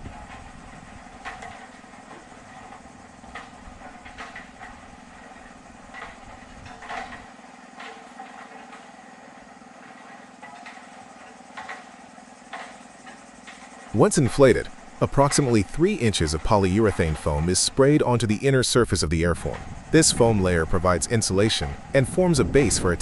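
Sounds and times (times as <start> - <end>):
blower fans droning: 0.0 - 23.0
deep rumble: 19.0 - 23.0.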